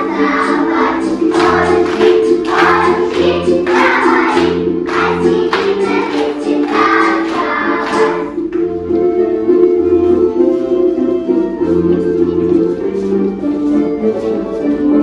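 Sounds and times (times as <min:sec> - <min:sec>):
children singing in unison: 0:00.0 - 0:08.4
instrumental accompaniment: 0:00.0 - 0:15.0.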